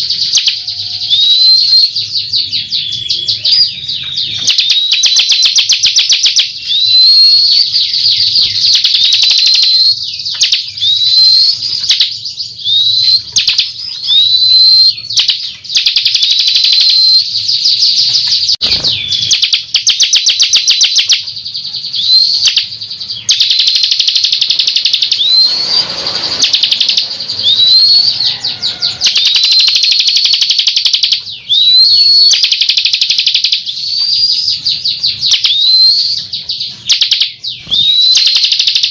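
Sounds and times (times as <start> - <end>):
bird whistled notes: 0.0 - 38.9
bird rattling trills: 22.0 - 38.9.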